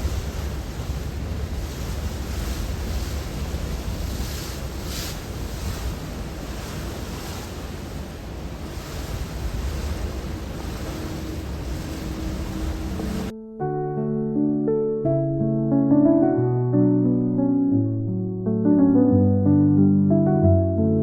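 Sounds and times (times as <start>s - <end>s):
rushing water: 0.0s - 13.3s
wind buffeting microphone: 0.0s - 13.3s
deep rumble: 8.6s - 13.3s.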